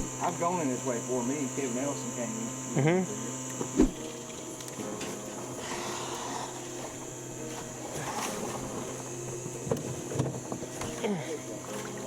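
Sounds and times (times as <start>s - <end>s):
electric motor humming and whining: 0.0s - 12.0s
faint water: 4.0s - 12.0s.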